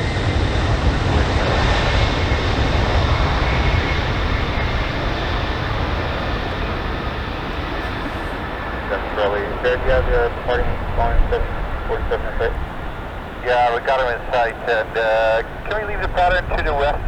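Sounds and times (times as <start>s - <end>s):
jet engines rumbling on climb: 0.0s - 17.0s.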